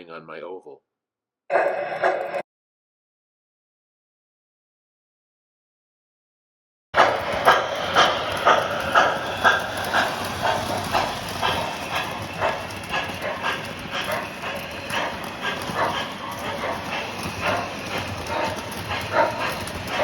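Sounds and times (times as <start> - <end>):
model train rumbling: 7.0 - 20.0
rhythmic track clicking: 7.0 - 20.0.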